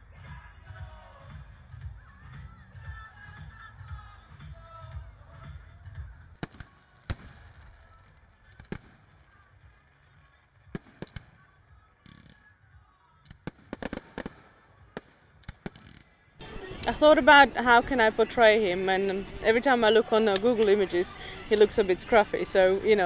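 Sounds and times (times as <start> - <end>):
fireworks bangs and cracks: 6.4 - 12.5, 13.2 - 16.1.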